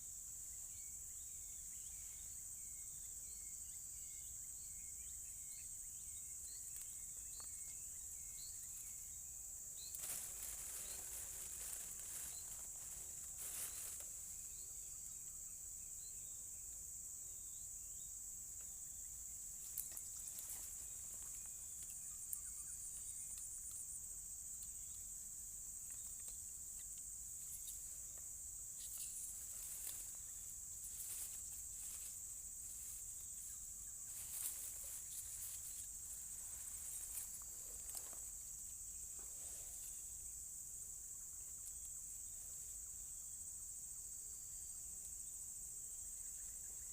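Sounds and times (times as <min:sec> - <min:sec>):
insects droning: 0:00.0 - 0:46.9
short insect chirps: 0:00.0 - 0:46.9
rustles and clicks: 0:09.8 - 0:14.4, 0:28.8 - 0:33.4, 0:34.1 - 0:38.4.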